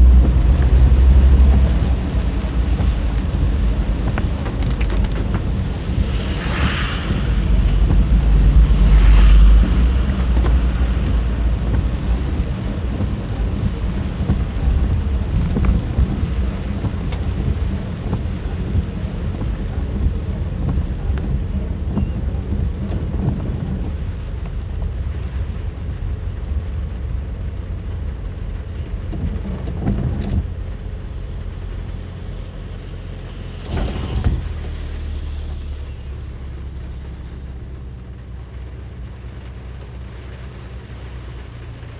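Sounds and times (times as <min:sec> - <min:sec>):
thunder rumbling: 0:00.0 - 0:38.5
car road noise: 0:00.0 - 0:41.9
steady rain: 0:00.0 - 0:41.9
brief whoosh: 0:04.3 - 0:13.5, 0:33.2 - 0:37.5.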